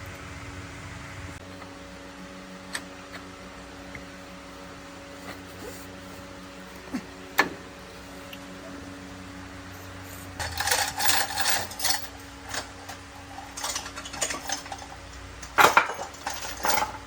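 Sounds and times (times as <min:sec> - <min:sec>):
low mechanical hum: 0:00.0 - 0:17.0
metal tools clinking and knocking: 0:10.4 - 0:17.0.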